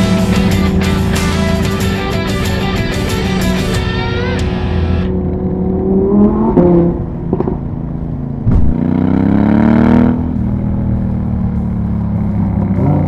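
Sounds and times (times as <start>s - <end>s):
rock music: 0.0s - 5.2s
vehicle engine accelerating: 0.0s - 13.0s
sharp pop: 8.5s - 8.8s.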